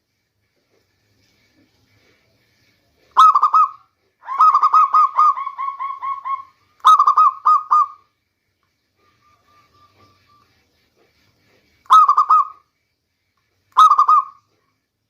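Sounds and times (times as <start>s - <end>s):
dove cooing: 3.2s - 8.0s, 13.8s - 14.4s.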